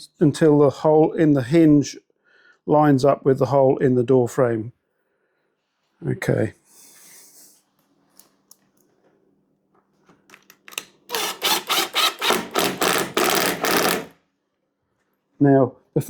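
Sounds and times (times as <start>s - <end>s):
tool scraping on door: 11.1s - 14.1s.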